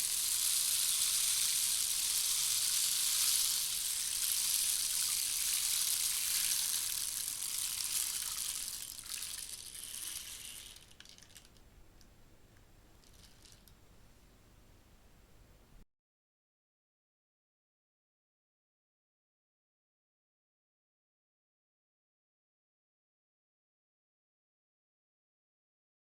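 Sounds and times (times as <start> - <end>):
rainstick rushing hiss: 0.0 - 11.0
faint trickles of grains: 0.0 - 11.5.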